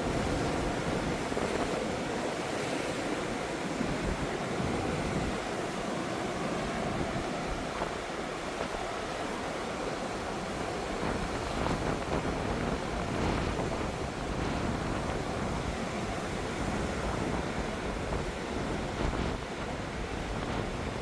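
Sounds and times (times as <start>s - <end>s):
surf washing against shore: 0.0s - 21.0s
wind rumbling on microphone: 0.0s - 21.0s.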